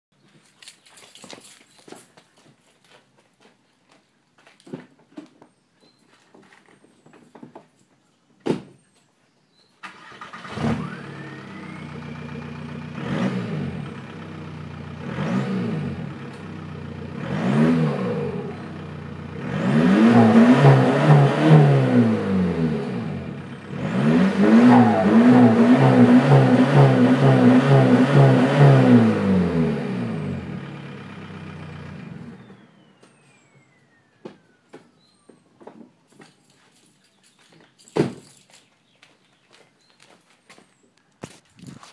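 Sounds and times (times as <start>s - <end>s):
diesel engine idling and revving: 9.9s - 34.5s.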